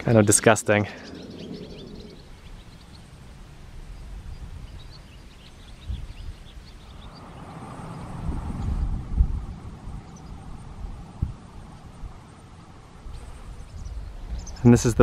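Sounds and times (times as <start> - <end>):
small birds chirping: 0.0 - 15.0
low rumble: 0.9 - 4.8.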